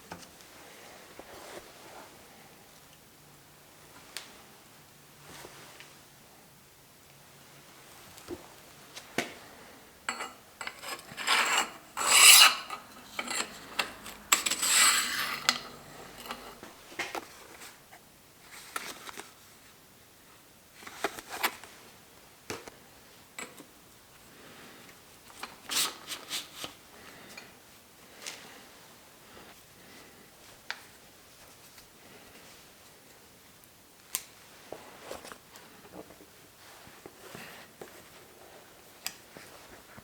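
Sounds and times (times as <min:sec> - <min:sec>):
rasping strokes on bicycle parts: 0:10.1 - 0:16.7.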